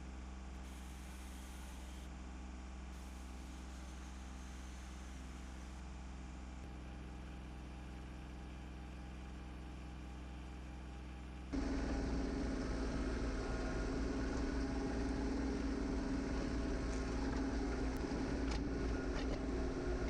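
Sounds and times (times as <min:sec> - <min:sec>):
tractor diesel engine running: 0:11.6 - 0:20.0.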